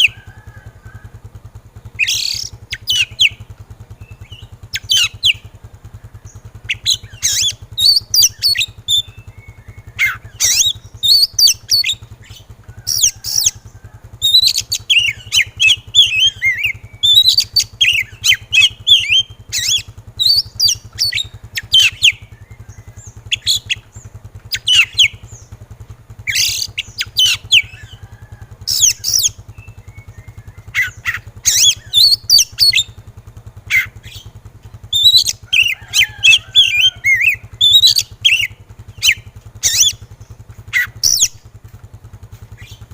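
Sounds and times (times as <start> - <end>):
steady low hum: 0.0 - 42.9
bird whistling and chattering: 1.9 - 3.4, 4.0 - 5.5, 6.6 - 13.6, 14.2 - 25.4, 26.2 - 28.0, 28.6 - 33.0, 33.7 - 40.1, 40.7 - 41.4.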